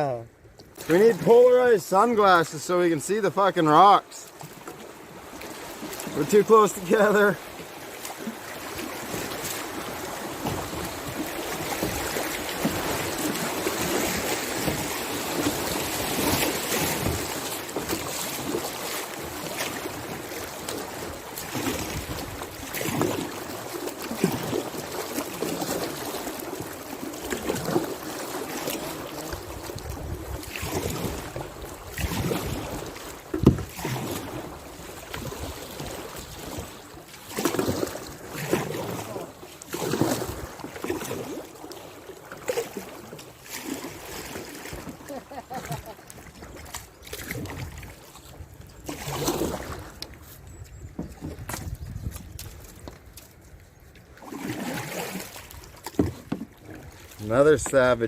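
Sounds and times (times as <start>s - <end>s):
river water rushing and splashing: 0.0s - 50.2s, 51.5s - 58.0s
knocks on kayak: 33.4s - 33.7s.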